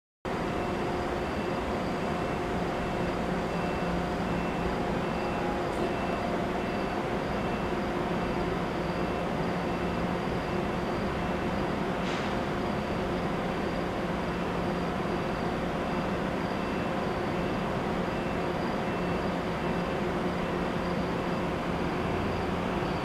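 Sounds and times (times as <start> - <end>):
train equipment humming: 0.3 - 23.0
faint high pulsing tone: 0.4 - 10.8.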